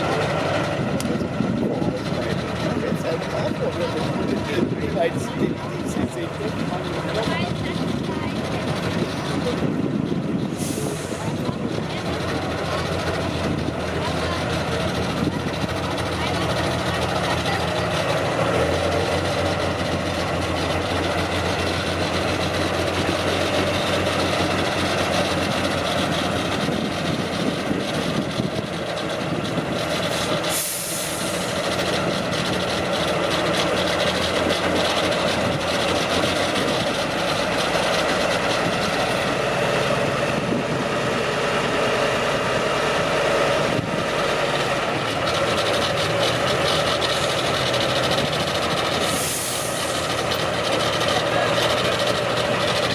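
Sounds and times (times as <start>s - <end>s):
truck engine running: 0.0s - 52.9s.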